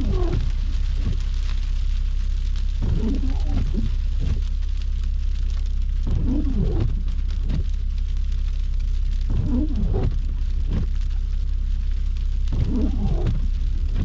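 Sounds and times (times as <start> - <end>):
windshield wipers squeaking: 0.0 - 1.2, 2.8 - 4.4, 6.1 - 7.0, 9.3 - 10.8, 12.5 - 14.0
car driving rumble: 0.0 - 14.0.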